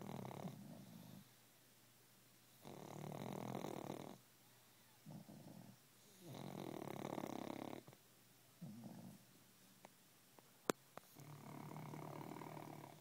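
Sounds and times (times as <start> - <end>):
dog snoring: 0.0 - 1.3, 2.6 - 4.2, 5.0 - 8.0, 8.6 - 9.2, 11.1 - 13.0.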